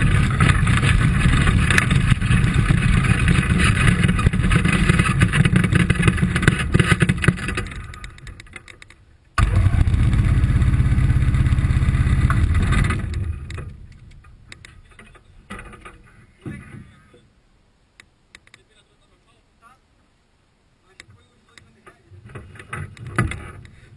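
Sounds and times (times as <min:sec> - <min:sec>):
faint clicks and knocks: 0:00.2 - 0:09.0, 0:12.2 - 0:16.9, 0:18.0 - 0:18.7
ultralight aircraft engine pulsing: 0:09.4 - 0:13.6.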